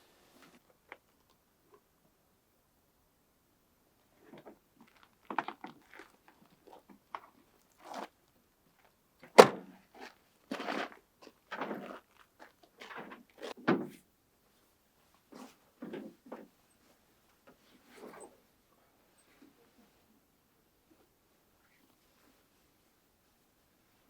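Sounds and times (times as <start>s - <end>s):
knocks and rustles of handling: 8.8s - 18.5s
heavy thunk: 9.4s - 9.7s.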